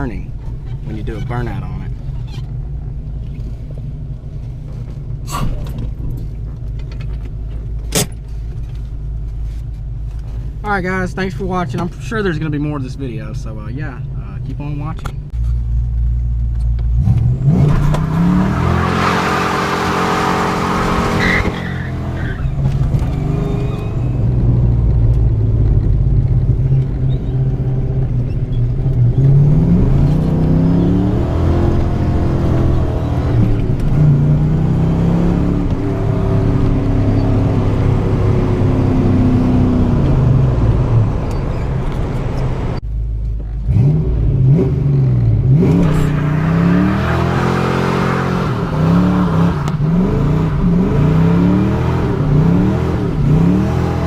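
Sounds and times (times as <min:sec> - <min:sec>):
car engine revving: 0:16.8 - 0:42.8, 0:43.5 - 0:54.0.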